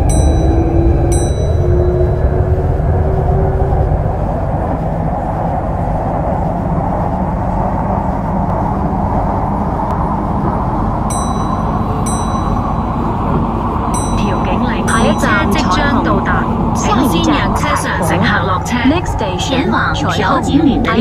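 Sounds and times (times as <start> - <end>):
metro train rumbling on track: 0.0 - 21.0.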